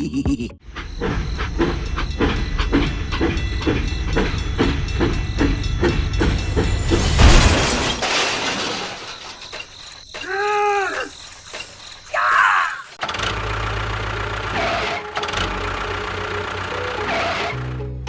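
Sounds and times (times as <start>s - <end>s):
small machine clattering rhythmically: 0.7s - 7.5s, 13.0s - 17.8s.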